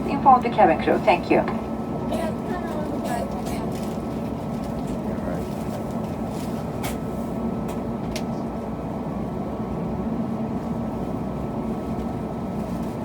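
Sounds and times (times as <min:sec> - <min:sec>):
aircraft cabin rumble and hum: 0:00.0 - 0:13.0.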